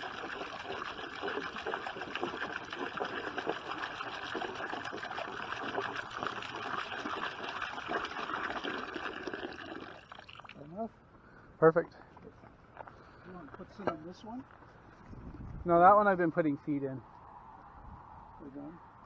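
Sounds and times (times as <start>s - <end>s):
water pouring into container: 0.0s - 10.7s.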